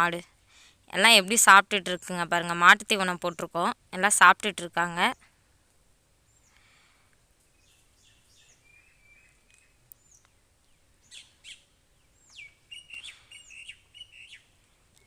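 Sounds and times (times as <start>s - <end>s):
small birds chirping: 6.2s - 15.0s.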